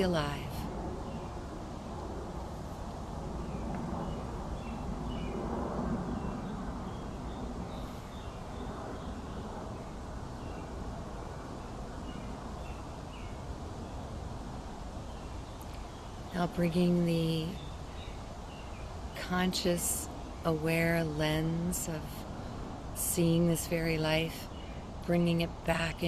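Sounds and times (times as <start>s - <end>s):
low background noise: 0.0s - 26.0s
small birds chirping: 14.9s - 20.6s.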